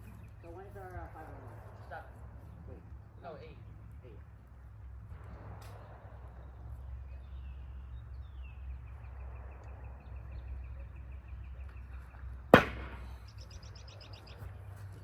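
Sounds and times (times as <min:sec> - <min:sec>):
low steady rumble: 0:00.0 - 0:15.0
bird chirping: 0:06.4 - 0:12.3, 0:13.1 - 0:14.9.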